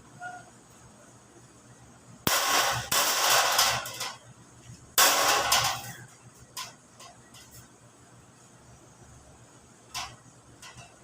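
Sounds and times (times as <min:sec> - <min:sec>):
sheet metal rattling and scraping: 0:02.3 - 0:04.3, 0:05.0 - 0:07.7, 0:09.9 - 0:11.0.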